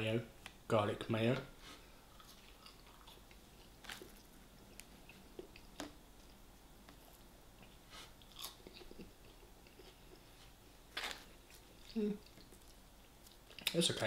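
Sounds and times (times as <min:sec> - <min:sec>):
person chewing fried food: 0:02.0 - 0:06.4, 0:07.0 - 0:13.7.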